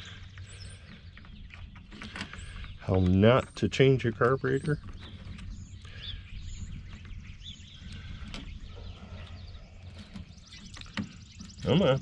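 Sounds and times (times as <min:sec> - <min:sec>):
steady low hum: 0:00.0 - 0:12.0
faint bird chirps: 0:04.4 - 0:12.0.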